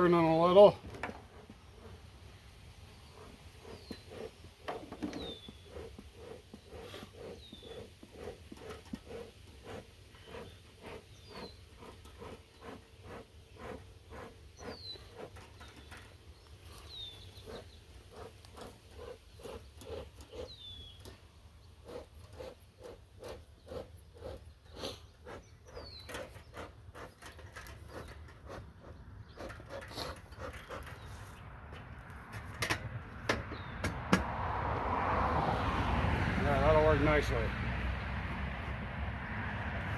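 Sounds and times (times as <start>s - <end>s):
bellows puffing: 0.6s - 21.1s, 21.8s - 31.4s.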